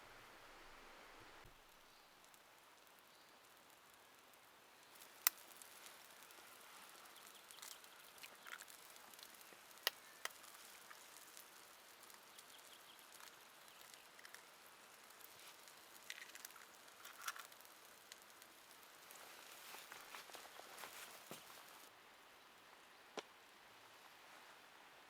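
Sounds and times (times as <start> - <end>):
rain pattering: 1.4 - 21.9.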